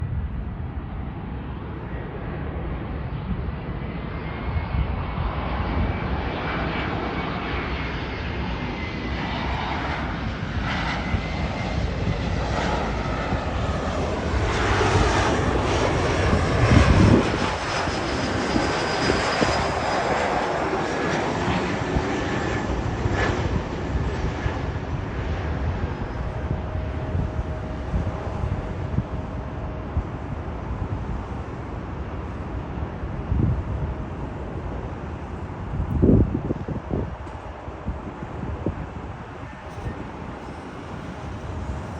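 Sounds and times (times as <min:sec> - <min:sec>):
jet airliner passing: 0:00.0 - 0:41.9.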